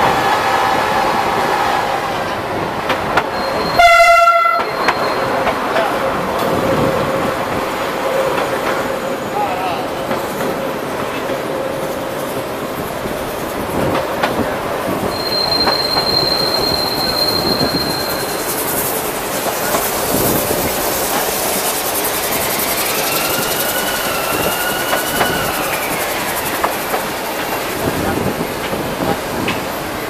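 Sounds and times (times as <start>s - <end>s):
train wheel and rail noise: 0.0s - 30.0s
clacks over rail joints: 2.8s - 3.3s, 13.4s - 14.6s, 26.5s - 29.8s
high wheel squeal: 3.2s - 5.6s, 15.0s - 28.4s.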